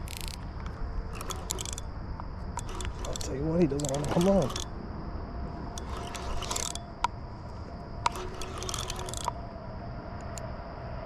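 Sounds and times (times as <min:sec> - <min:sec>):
fishing reel ticking: 0:00.0 - 0:00.4, 0:01.1 - 0:01.9, 0:02.6 - 0:04.7, 0:05.7 - 0:07.1, 0:08.0 - 0:09.4.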